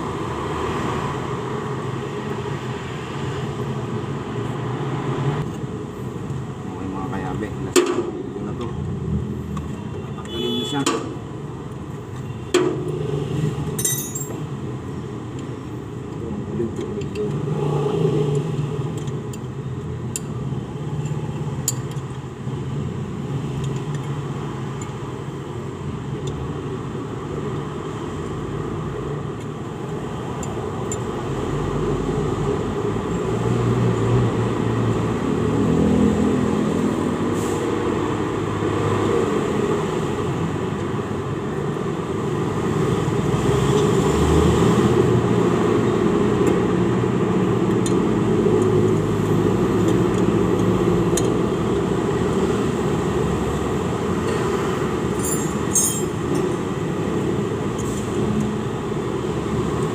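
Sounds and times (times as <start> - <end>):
motor vehicle rumble: 10.9 - 59.9
sharp metallic clinks: 13.8 - 14.4, 55.1 - 56.5.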